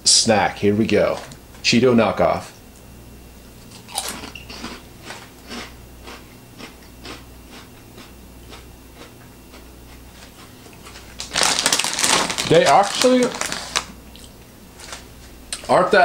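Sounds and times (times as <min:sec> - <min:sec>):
person chewing crunchy snack: 0:03.6 - 0:15.0.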